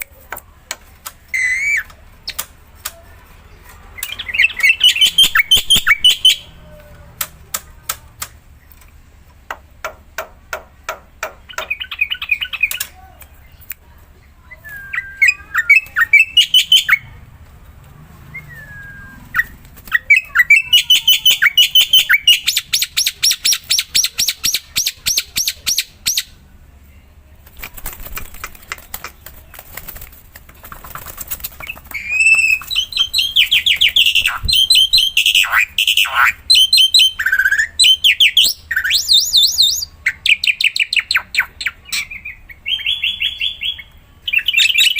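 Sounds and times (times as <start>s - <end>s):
bird whistles and squawks: 1.3s - 1.9s, 4.0s - 6.6s, 14.5s - 17.1s, 18.4s - 26.3s, 31.6s - 44.9s
bird song with clicking rattles: 10.9s - 13.7s, 27.8s - 35.0s.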